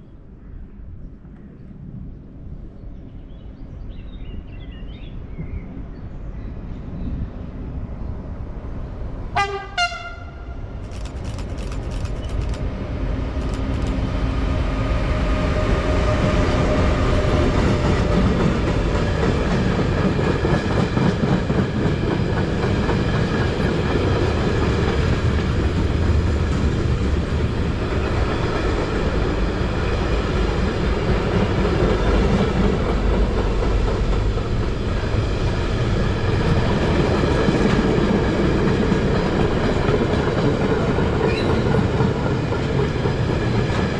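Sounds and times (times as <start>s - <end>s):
train horn blasts: 9.3s - 10.6s
train rolling rumble: 10.6s - 43.9s
train wheels clicking: 10.8s - 14.3s, 16.2s - 43.9s.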